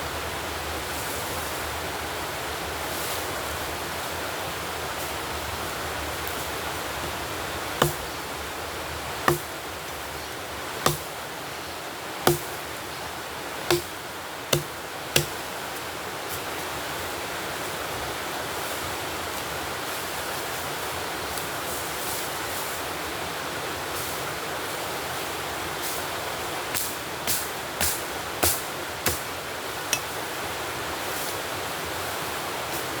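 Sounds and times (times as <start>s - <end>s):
sharp knocks: 7.8s - 8.2s, 9.3s - 9.5s, 10.8s - 11.1s, 12.3s - 12.6s, 13.7s - 13.9s, 14.6s - 15.3s.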